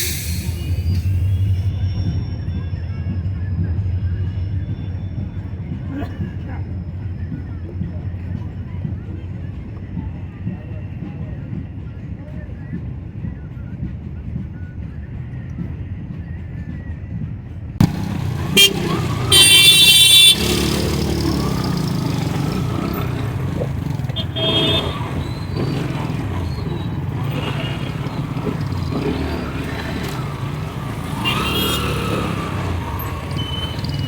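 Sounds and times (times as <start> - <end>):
road traffic noise: 0.0 - 10.4, 17.8 - 34.0
vehicle horns honking: 17.8 - 34.0.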